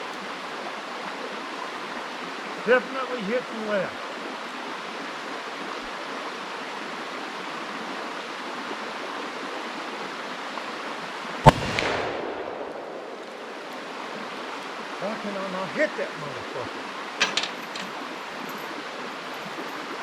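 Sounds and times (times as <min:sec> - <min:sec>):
rushing stream: 0:00.0 - 0:20.0
gunshot echoing: 0:11.5 - 0:13.7.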